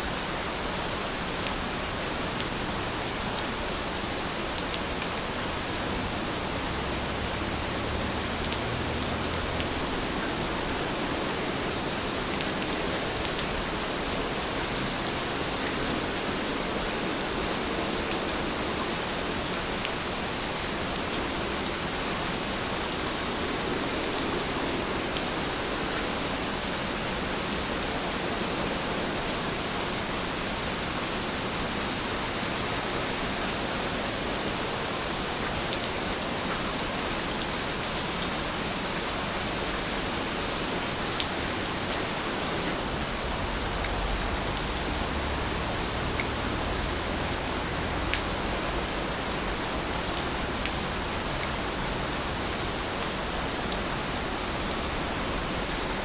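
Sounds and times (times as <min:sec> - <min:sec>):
steady rain hiss: 0:00.0 - 0:56.0
rain drop ticks: 0:43.8 - 0:48.7.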